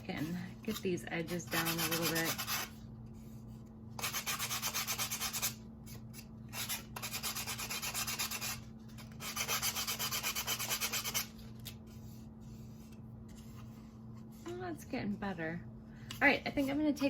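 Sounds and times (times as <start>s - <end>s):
sandpaper rubbing wood: 1.5s - 2.7s, 4.0s - 5.6s, 6.6s - 8.6s, 9.2s - 11.3s.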